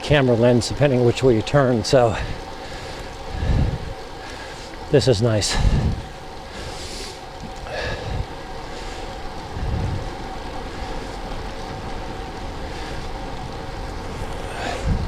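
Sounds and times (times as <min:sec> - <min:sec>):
tyres humming on road: 0:00.0 - 0:15.0
wind buffeting microphone: 0:00.0 - 0:15.0.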